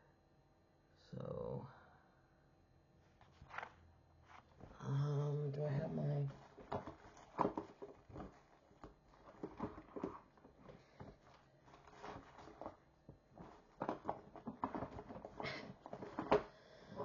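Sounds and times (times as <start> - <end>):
objects moved on a table: 3.2 - 4.8, 6.3 - 17.0.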